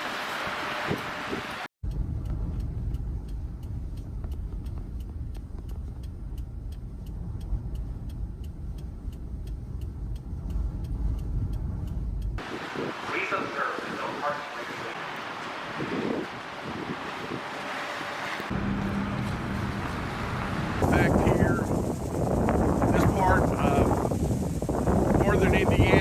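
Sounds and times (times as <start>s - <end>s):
faint even ticking: 1.8s - 12.5s
steady low rumble: 1.8s - 26.0s
windy hiss: 3.0s - 26.0s.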